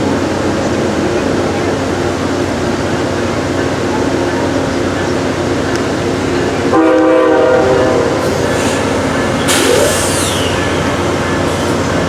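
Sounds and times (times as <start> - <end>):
train running: 0.0 - 12.0
locomotive horn blast: 6.7 - 11.8
brief hiss: 8.2 - 11.8.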